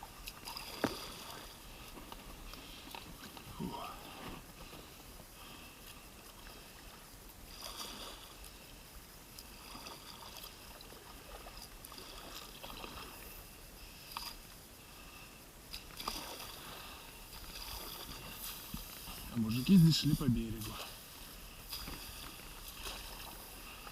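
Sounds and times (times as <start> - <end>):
paddle splashing in water: 0.0 - 5.0, 5.9 - 8.7, 9.4 - 14.4, 15.7 - 23.9.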